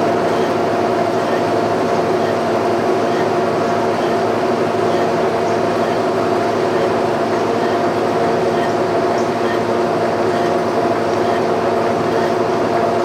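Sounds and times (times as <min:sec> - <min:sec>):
boring machine humming: 0:00.0 - 0:13.0.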